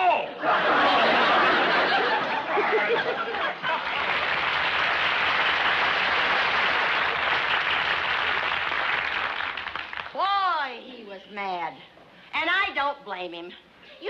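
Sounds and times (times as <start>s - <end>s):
audience laughing: 0.2s - 4.7s
audience clapping: 1.7s - 10.2s.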